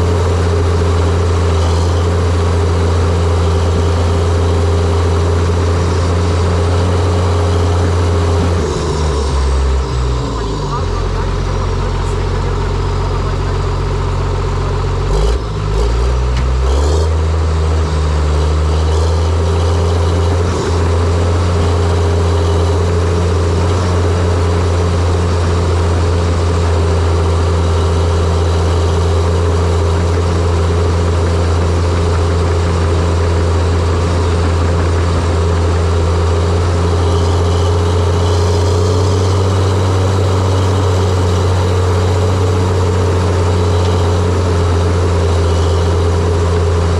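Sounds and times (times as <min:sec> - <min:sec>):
bulldozer diesel engine running: 0:00.0 - 0:46.9.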